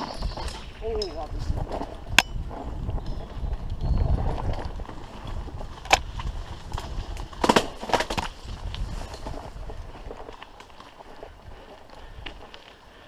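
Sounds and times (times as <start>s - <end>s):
bike rattling and knocking: 0.0s - 12.5s
bicycle tyres rumbling: 0.0s - 13.0s
wind: 0.0s - 13.0s.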